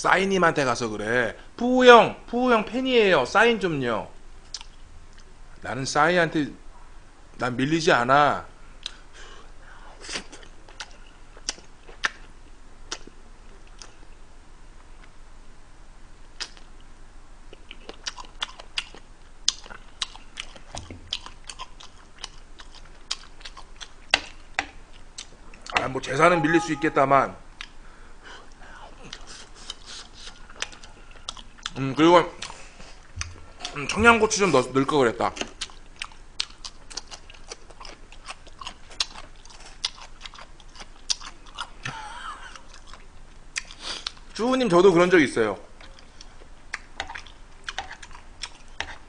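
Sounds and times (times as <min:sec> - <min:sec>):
person chewing food: 0:04.5 - 0:05.3, 0:10.0 - 0:14.0, 0:17.5 - 0:25.8, 0:28.4 - 0:31.8, 0:32.4 - 0:34.0, 0:35.4 - 0:44.3, 0:45.7 - 0:49.0
wet mouth smacks and clicks: 0:04.5 - 0:05.3, 0:16.4 - 0:16.7.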